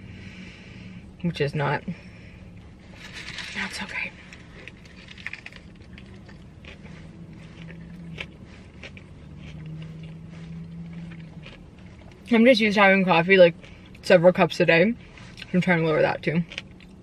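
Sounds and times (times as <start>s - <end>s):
low steady hum: 0.0s - 17.0s
paper wrapper crinkling: 3.0s - 6.4s
person biting and chewing: 4.3s - 12.3s, 16.4s - 17.0s.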